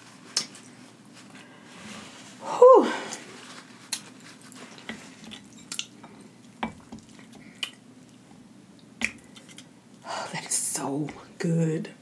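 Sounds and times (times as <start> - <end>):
wet chewing of noodles: 3.7 - 8.3.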